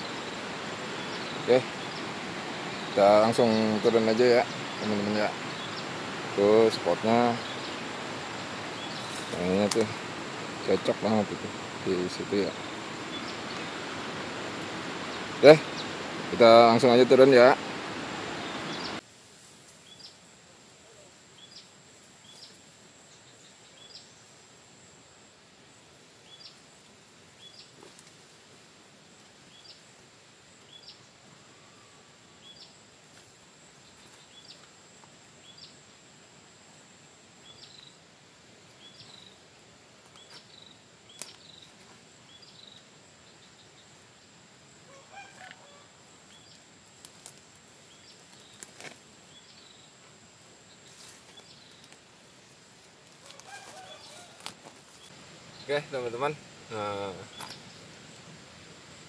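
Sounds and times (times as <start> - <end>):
twigs snapping underfoot: 9.0 - 10.0, 41.1 - 41.5, 46.9 - 49.0, 51.7 - 52.0, 53.0 - 55.0
rooster crowing faintly: 44.8 - 46.1, 53.2 - 54.7.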